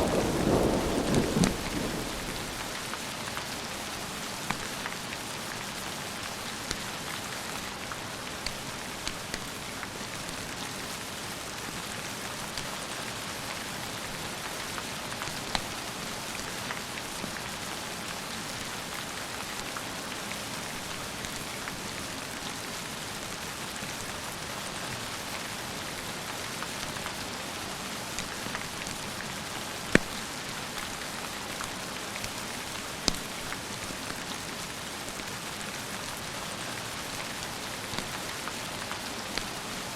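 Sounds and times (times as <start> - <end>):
rain falling: 0.0 - 39.9
sharp snaps: 33.1 - 33.3.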